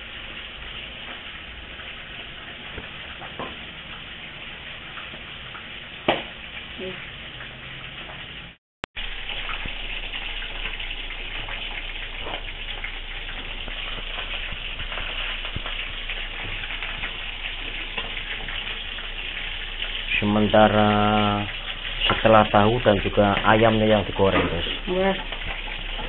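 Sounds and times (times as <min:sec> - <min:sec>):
food frying in hot oil: 0:00.0 - 0:26.0.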